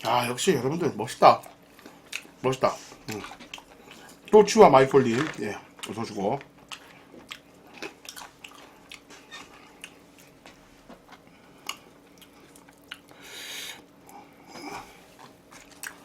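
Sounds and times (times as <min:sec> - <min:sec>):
close chewing with wet mouth clicks: 0:01.4 - 0:02.4, 0:03.1 - 0:04.4, 0:05.8 - 0:10.3, 0:11.6 - 0:13.2, 0:15.2 - 0:16.0.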